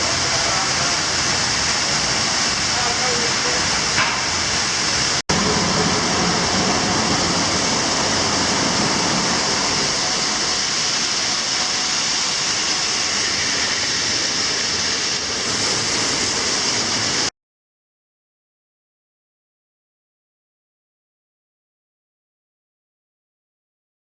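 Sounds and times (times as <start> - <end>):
water spraying from pipe: 0.0 - 17.3.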